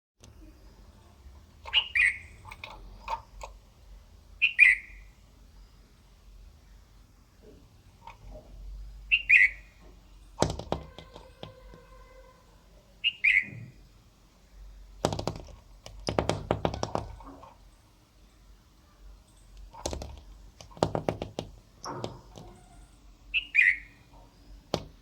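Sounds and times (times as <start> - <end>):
bird sharp downward calls: 1.7 - 2.5, 4.4 - 5.2, 9.0 - 9.8, 10.5 - 13.9, 22.3 - 24.9
clicks and knocks: 10.4 - 11.9, 15.0 - 17.6, 19.6 - 22.6
rapid tapping and knocking: 10.4 - 11.9, 15.0 - 17.5, 19.7 - 22.7, 24.7 - 25.0.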